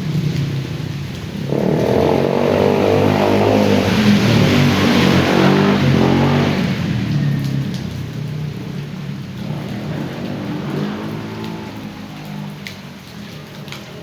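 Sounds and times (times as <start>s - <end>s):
rain: 0.0s - 14.0s
running water: 0.0s - 14.0s.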